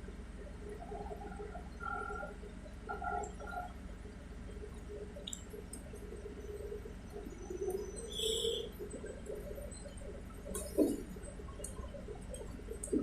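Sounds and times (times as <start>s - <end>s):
bus cabin rumble and hum: 0.0s - 13.0s.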